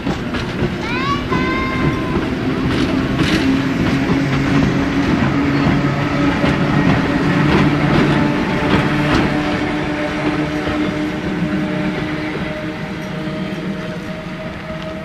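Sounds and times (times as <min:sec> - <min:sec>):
train wheels clicking over rail joints: 0:00.0 - 0:15.0.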